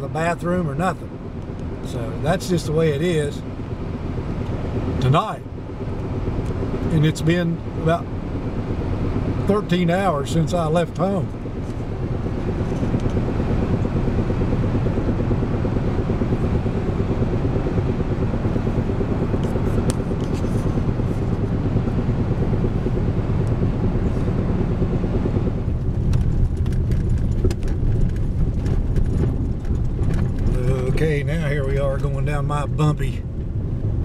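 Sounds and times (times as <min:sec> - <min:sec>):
truck engine and tyres rumbling: 0:00.0 - 0:34.0
knocks and rattles: 0:25.8 - 0:30.7.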